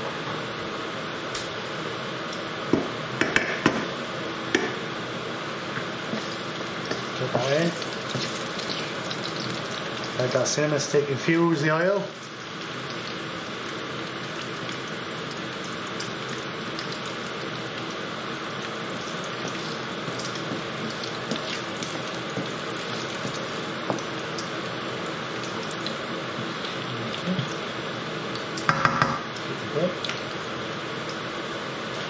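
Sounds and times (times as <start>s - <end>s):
sizzle of frying in oil: 0.0s - 32.0s.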